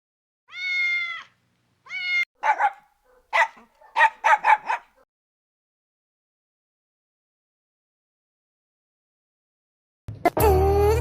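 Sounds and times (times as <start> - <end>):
animal drawn-out high cries: 0.5 - 2.3
short sharp barks: 2.1 - 5.0.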